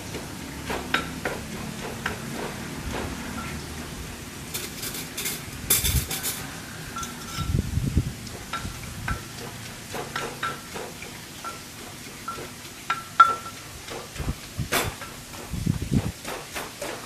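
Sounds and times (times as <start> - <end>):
pestle pounding in mortar: 0.0 - 3.4, 8.3 - 17.0.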